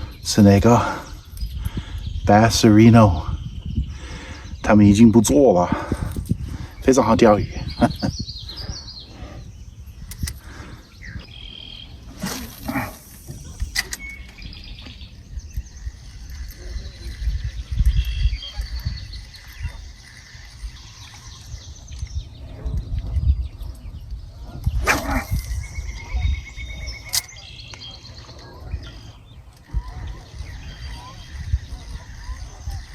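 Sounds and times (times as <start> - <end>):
small birds chirping: 0.0 - 32.9
sharp clicks: 10.0 - 10.5, 12.2 - 15.0, 24.8 - 26.1, 27.0 - 27.8.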